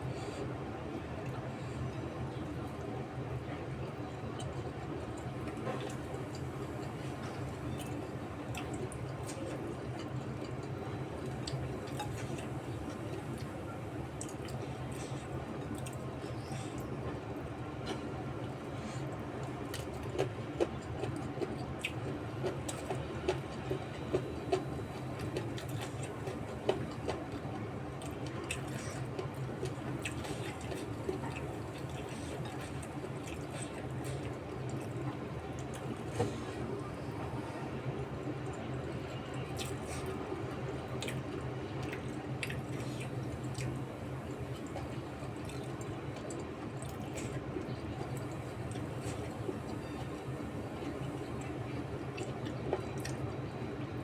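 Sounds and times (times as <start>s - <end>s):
chewing: 5.2s - 17.2s, 17.8s - 37.6s, 39.4s - 53.3s
wet chewing and mouth clicks: 44.6s - 49.4s.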